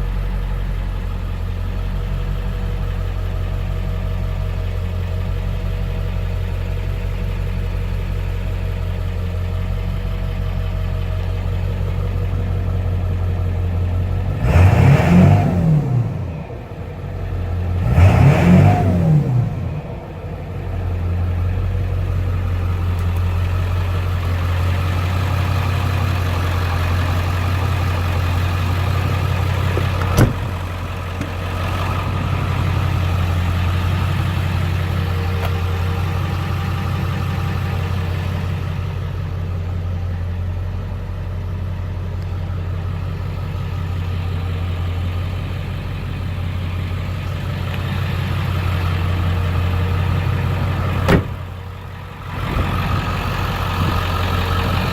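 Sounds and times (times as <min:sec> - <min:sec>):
diesel engine idling: 0:00.0 - 0:54.9
sharp knock: 0:51.1 - 0:51.4.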